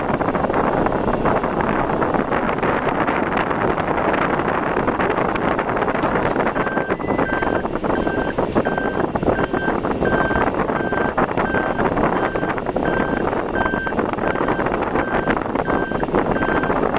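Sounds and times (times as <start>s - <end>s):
car road noise: 0.0s - 16.9s
wind: 0.0s - 16.9s
short high electronic beeps: 6.6s - 16.8s.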